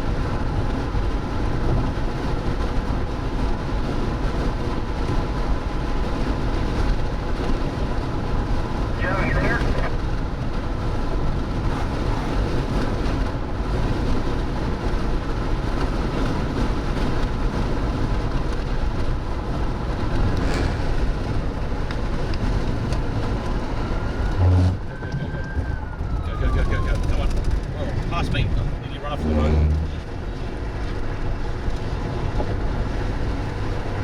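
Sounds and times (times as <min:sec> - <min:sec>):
car road and engine rumble: 0:00.0 - 0:34.0
rising and falling tone: 0:23.8 - 0:27.0
short low buzz: 0:24.2 - 0:24.9.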